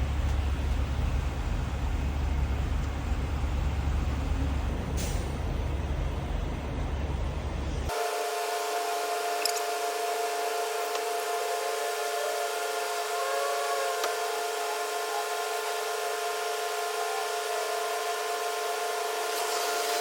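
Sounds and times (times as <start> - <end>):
fuel pump whining: 7.9 - 20.0.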